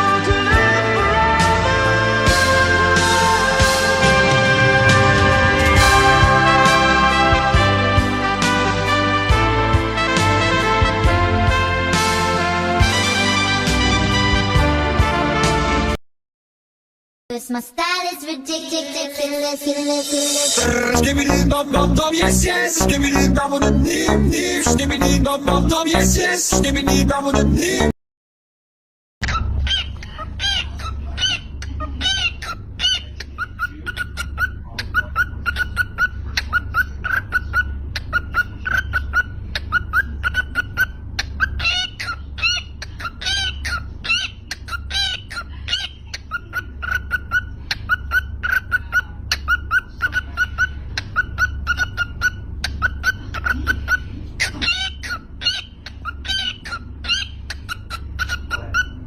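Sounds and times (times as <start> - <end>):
low hum: 0.3 - 12.2, 18.6 - 27.9
cockatiel chirping and whistling: 29.3 - 59.0.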